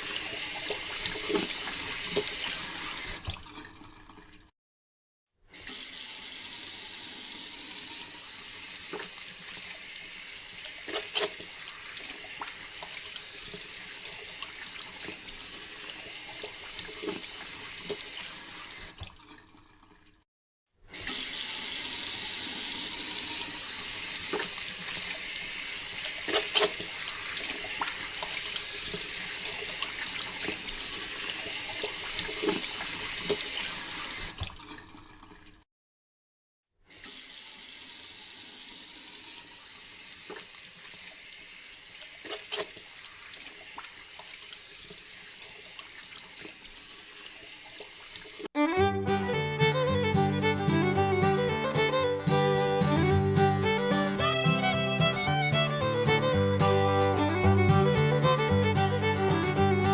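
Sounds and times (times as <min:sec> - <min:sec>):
water pouring and splashing: 0:00.0 - 0:04.5, 0:05.6 - 0:20.2, 0:20.9 - 0:35.6, 0:36.9 - 0:48.5.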